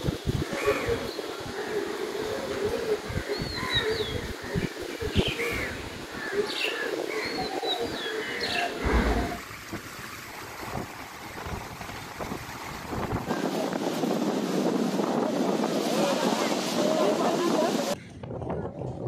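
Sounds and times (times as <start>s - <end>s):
low thump: 8.8s - 9.4s.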